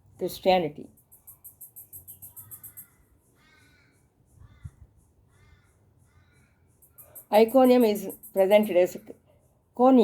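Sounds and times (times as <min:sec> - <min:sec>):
faint crow cawing: 0:02.0 - 0:08.2.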